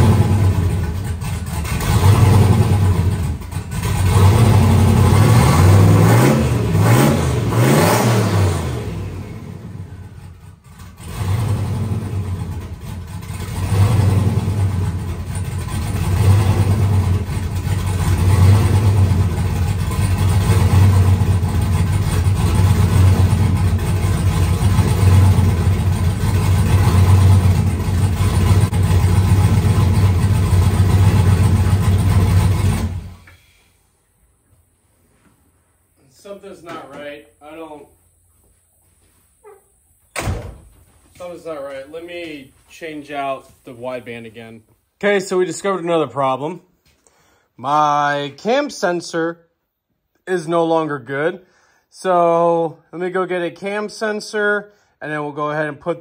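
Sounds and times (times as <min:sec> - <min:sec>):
engine running rough: 0:00.0 - 0:33.6.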